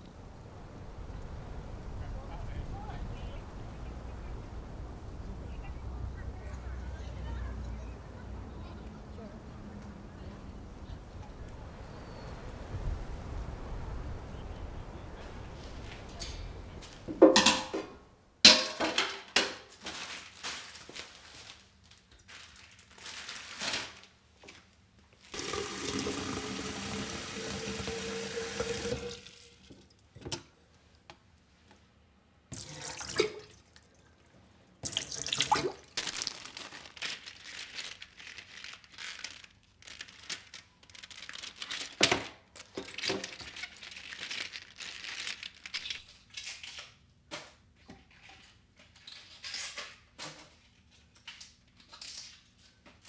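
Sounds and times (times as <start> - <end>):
clinks and knocks of items handled: 15.3 - 21.5, 36.0 - 53.0
tap running into sink: 15.8 - 18.0, 25.4 - 30.5.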